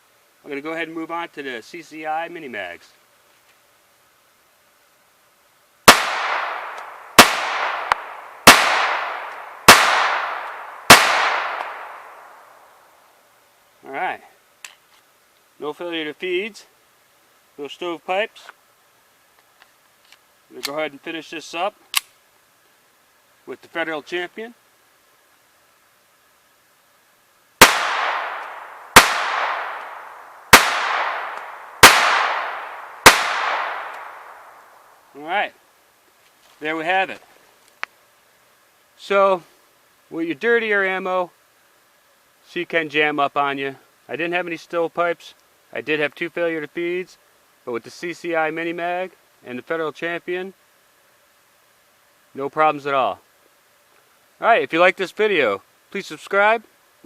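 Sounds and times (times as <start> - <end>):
pistol shots with echo: 5.9 - 12.3, 27.6 - 34.6.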